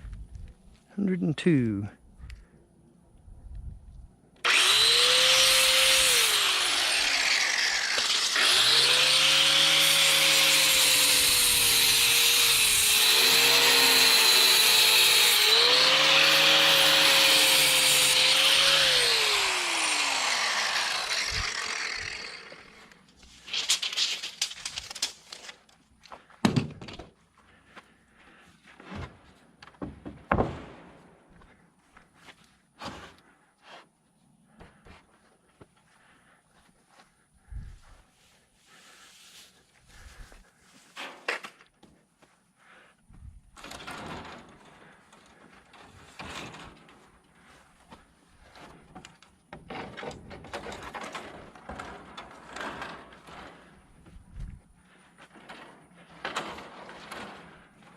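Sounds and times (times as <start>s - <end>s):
electric saw cutting wood: 4.4s - 23.0s
sharp wooden knocks: 29.8s - 30.9s.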